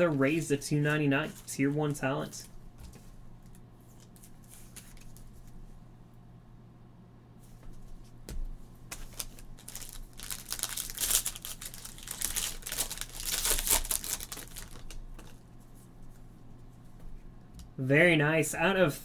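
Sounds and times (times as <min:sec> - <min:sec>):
plastic wrapper tearing and crinkling: 0:08.9 - 0:15.4.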